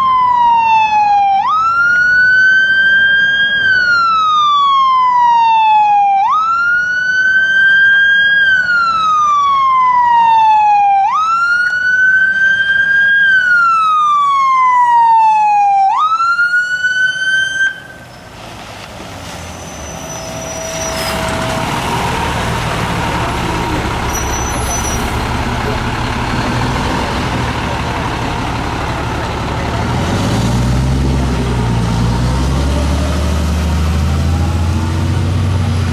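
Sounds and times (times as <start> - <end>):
fire engine siren wailing: 0.0 - 18.3, 19.0 - 35.9
heavy truck rumbling: 17.7 - 35.9.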